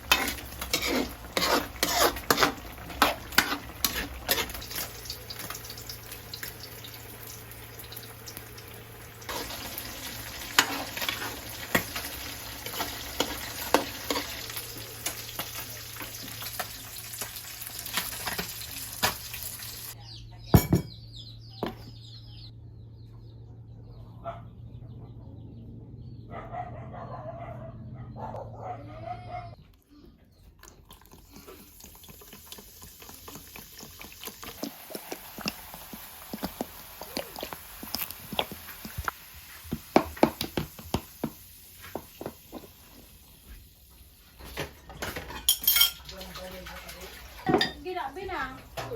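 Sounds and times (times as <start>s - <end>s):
utensil scraping a pan: 0.0s - 5.6s, 9.3s - 19.3s
food sizzling in a frying pan: 0.0s - 20.0s, 31.3s - 48.9s.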